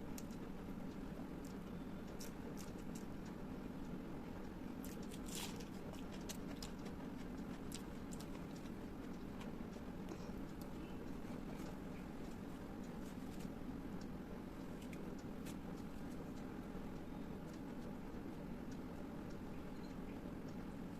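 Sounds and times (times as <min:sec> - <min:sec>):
low background hum: 0:00.0 - 0:20.9
person chewing food: 0:04.8 - 0:13.5.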